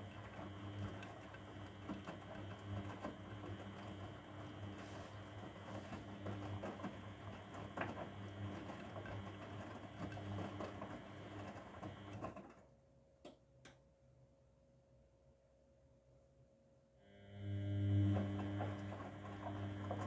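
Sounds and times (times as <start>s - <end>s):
washing machine motor humming: 0.0s - 12.5s, 17.1s - 20.0s
tumbling laundry patter: 0.0s - 12.7s, 18.2s - 20.0s.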